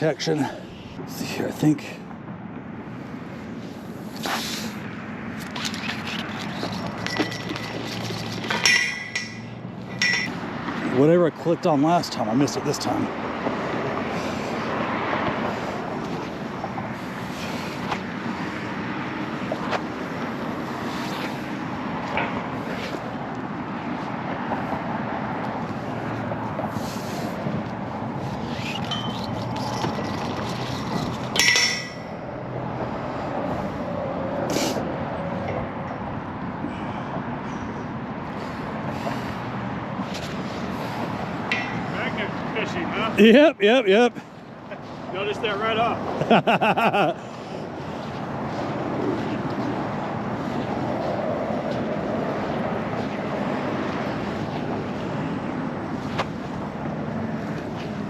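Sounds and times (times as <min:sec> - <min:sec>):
road traffic: 0:00.0 - 0:58.0
sharp metallic clink: 0:08.6 - 0:10.3, 0:31.3 - 0:32.2.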